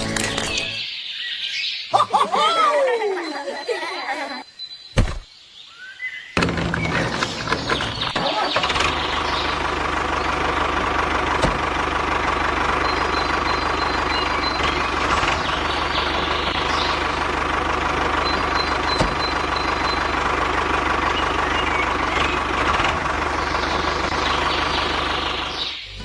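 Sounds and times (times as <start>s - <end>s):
small tractor engine running: 0.0s - 0.8s, 6.4s - 26.0s.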